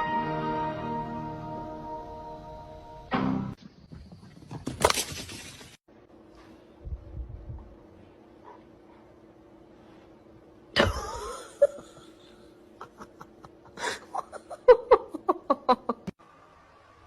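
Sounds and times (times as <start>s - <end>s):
person laughing: 10.8s - 16.1s.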